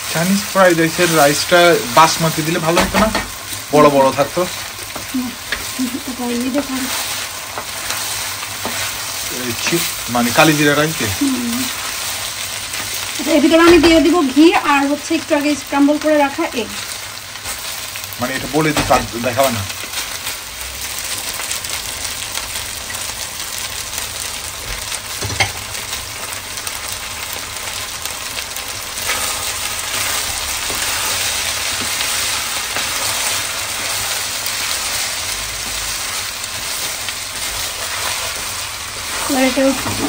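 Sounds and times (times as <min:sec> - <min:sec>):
rice sizzling in a wok: 0:00.0 - 0:40.0
wooden spatula scraping pan: 0:06.5 - 0:10.2.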